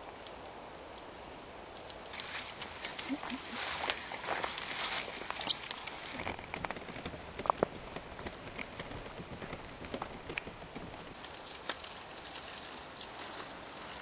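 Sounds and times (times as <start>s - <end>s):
leaves and twigs crackling: 0.0s - 14.0s
footsteps on forest floor: 2.1s - 11.9s.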